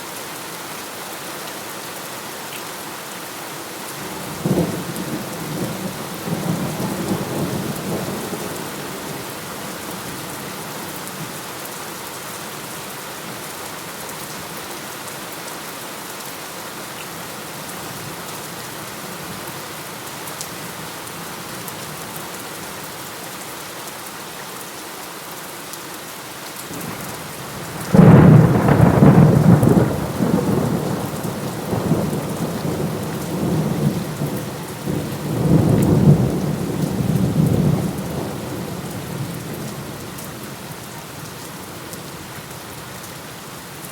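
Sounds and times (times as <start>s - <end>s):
steady rain: 0.0s - 43.9s
low rumble of thunder: 4.2s - 9.5s, 26.8s - 40.1s
loud thunderclap: 27.6s - 34.0s.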